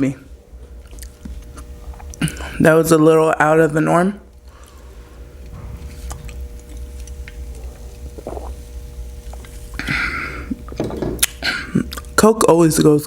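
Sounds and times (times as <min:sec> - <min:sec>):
steady low hum: 0:00.0 - 0:13.0
mouth eating and drinking sounds: 0:00.8 - 0:02.6, 0:06.0 - 0:12.2.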